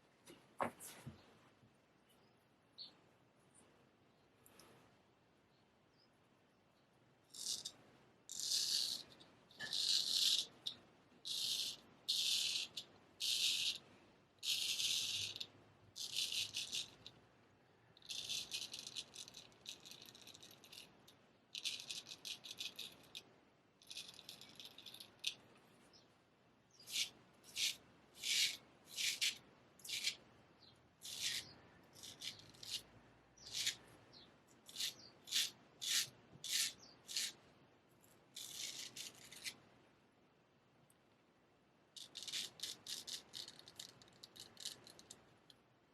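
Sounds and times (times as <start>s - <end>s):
straight razor scraping stubble: 26.8s - 30.2s, 31.0s - 37.4s.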